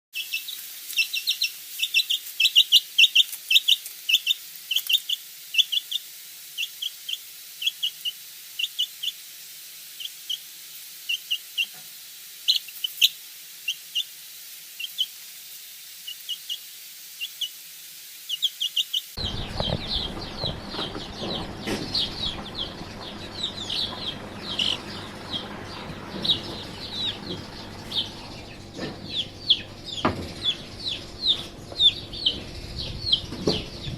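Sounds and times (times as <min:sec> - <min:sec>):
birds chirping: 0:00.2 - 0:06.0, 0:18.3 - 0:33.9.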